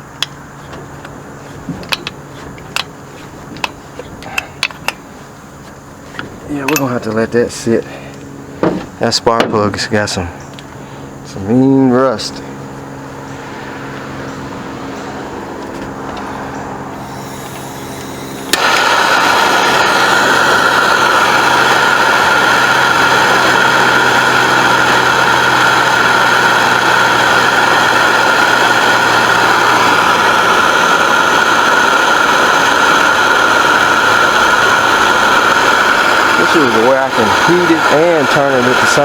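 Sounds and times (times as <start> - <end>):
gas torch hissing: 16.9 - 39.0
gas torch igniter click: 17.0 - 22.3.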